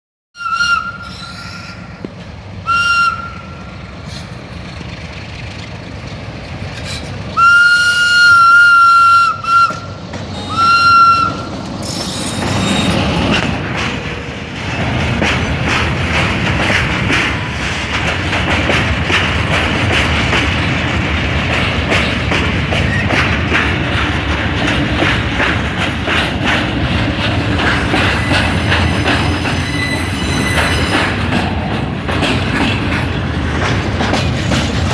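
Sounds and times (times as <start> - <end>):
train horn blasts: 0.4 - 1.9, 2.6 - 3.8, 7.4 - 11.6
train wagons clattering over rails: 0.4 - 34.9.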